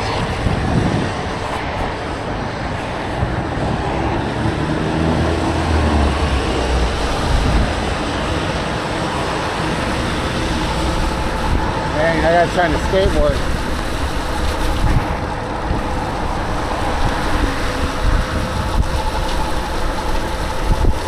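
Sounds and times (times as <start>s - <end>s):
road traffic noise: 0.0s - 21.0s
vehicle engine low hum: 0.0s - 21.0s
wind on microphone: 0.0s - 21.0s.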